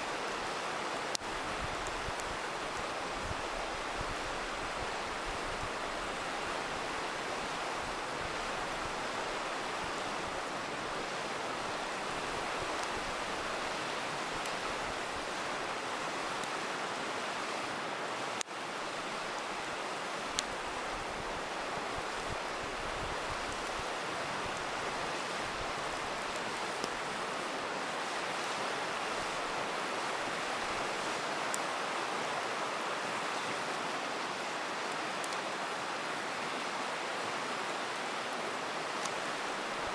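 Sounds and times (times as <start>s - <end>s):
river rushing: 0.0s - 39.9s
campfire crackling pops: 0.2s - 15.4s, 20.3s - 27.1s.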